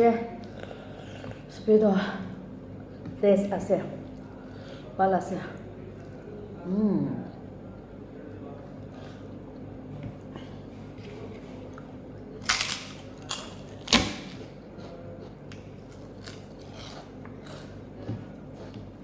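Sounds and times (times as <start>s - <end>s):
person chewing and crunching food: 7.7s - 19.0s.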